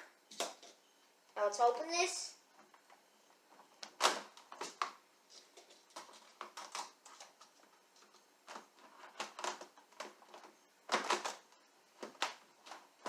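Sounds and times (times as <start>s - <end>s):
plastic parts clicking and rustling: 2.6s - 13.0s.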